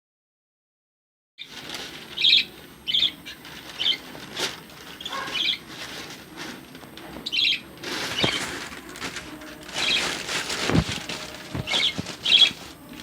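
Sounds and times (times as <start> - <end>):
lovebirds chirping: 1.4 - 13.0
wings fluttering: 1.4 - 13.0.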